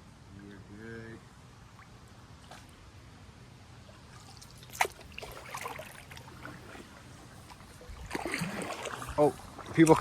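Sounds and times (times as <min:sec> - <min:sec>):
paddle splashing in water: 0:04.1 - 0:10.0.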